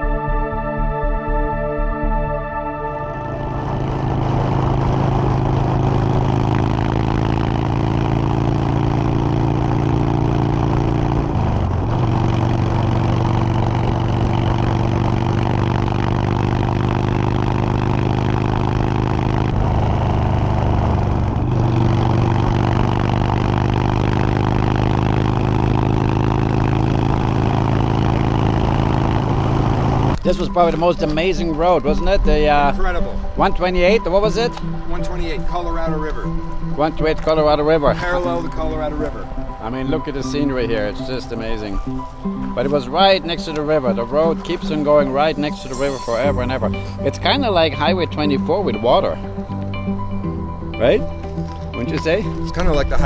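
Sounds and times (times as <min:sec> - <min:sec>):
wind and road noise: 0:03.0 - 0:30.2
motorcycle engine running: 0:03.2 - 0:30.2, 0:45.0 - 0:48.5.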